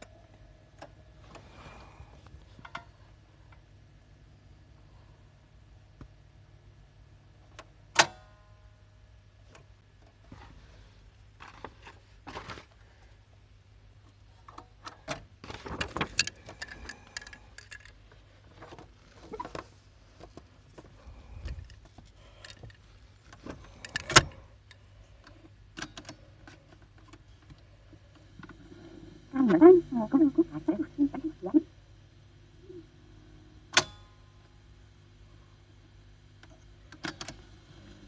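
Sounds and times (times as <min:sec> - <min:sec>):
low steady hum: 0:00.0 - 0:38.0
small metal parts clicking: 0:15.8 - 0:18.0, 0:23.6 - 0:24.8.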